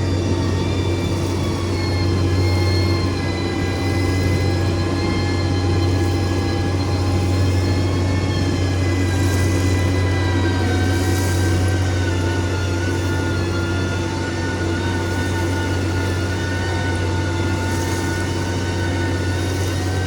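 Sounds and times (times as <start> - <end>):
heavy diesel engine running: 0.0 - 20.0
high whine: 0.0 - 20.0.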